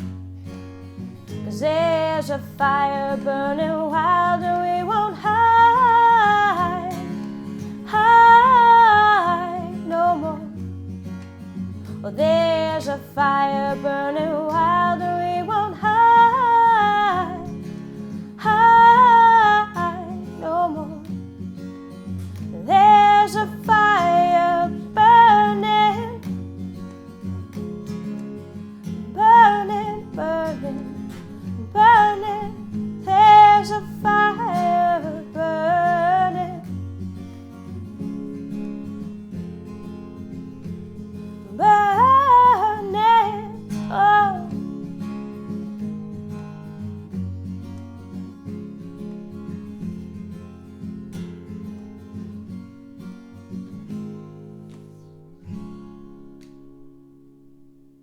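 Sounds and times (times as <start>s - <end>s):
strummed acoustic guitar: 0.0s - 58.0s
woman singing wordless phrases: 1.3s - 10.7s, 12.0s - 17.7s, 18.4s - 21.2s, 22.4s - 26.3s, 29.0s - 36.8s, 41.4s - 44.9s.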